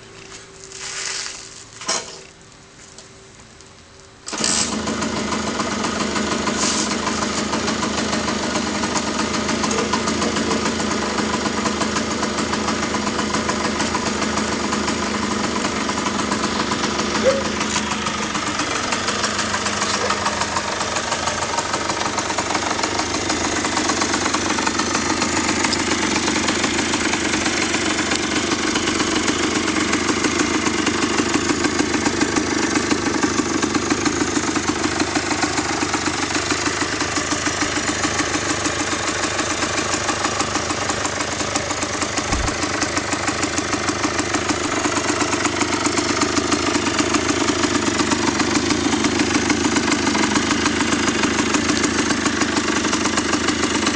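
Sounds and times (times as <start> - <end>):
two-stroke engine idling: 4.2 - 53.9.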